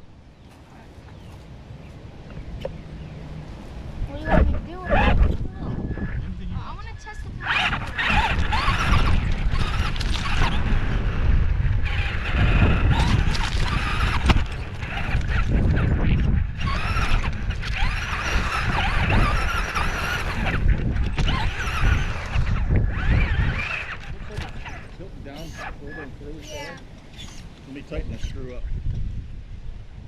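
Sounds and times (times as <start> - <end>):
rc car high squealing whine: 7.4 - 11.1, 11.8 - 27.5.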